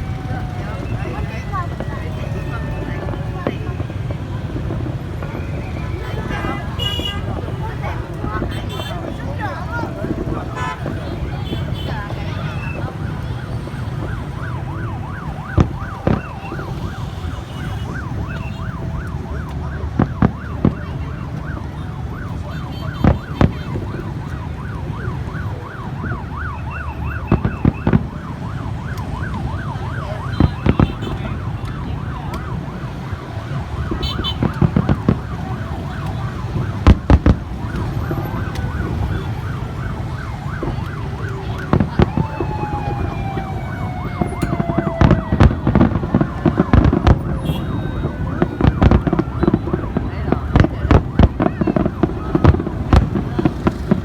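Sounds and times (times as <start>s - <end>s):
firework explosions banging: 0.0s - 21.6s, 27.3s - 28.2s, 33.8s - 39.8s, 41.6s - 54.0s
siren wailing: 0.0s - 54.0s.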